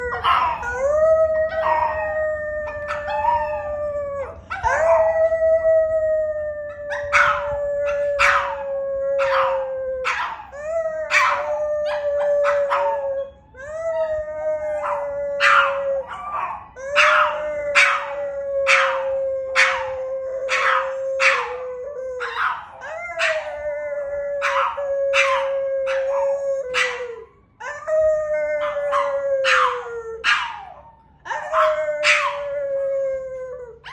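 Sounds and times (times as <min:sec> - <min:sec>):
dog yipping and barking: 0:00.0 - 0:02.2, 0:06.9 - 0:08.6, 0:09.2 - 0:10.5, 0:11.1 - 0:13.3, 0:14.8 - 0:18.1, 0:19.6 - 0:21.6, 0:22.2 - 0:23.6, 0:24.4 - 0:27.0, 0:28.6 - 0:32.4
dog howling: 0:00.0 - 0:33.9.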